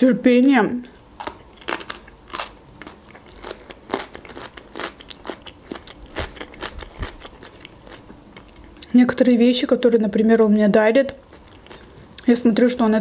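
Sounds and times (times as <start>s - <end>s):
cucumber being bitten and chewed: 1.2s - 8.8s.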